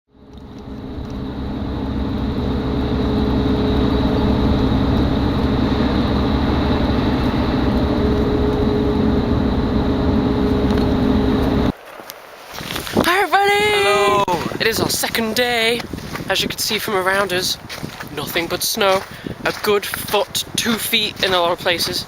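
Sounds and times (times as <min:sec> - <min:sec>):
vehicle engine drone: 0:00.1 - 0:11.8.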